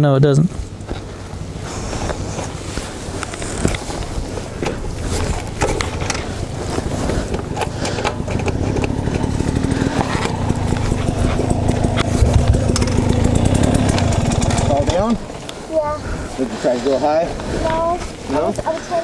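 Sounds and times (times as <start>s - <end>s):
dirt bike engine running: 0.5s - 19.0s
steady hum: 0.6s - 16.7s
clicks and clatter: 3.2s - 15.6s.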